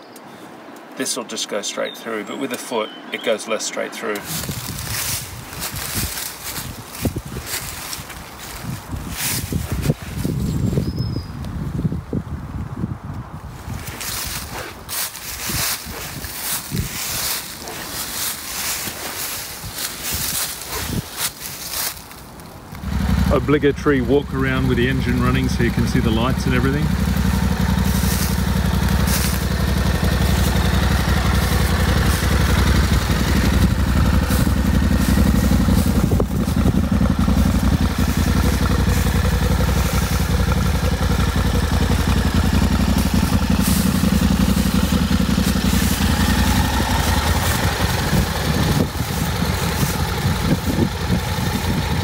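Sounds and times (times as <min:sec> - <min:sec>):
motorcycle engine idling: 0:22.7 - 0:52.0.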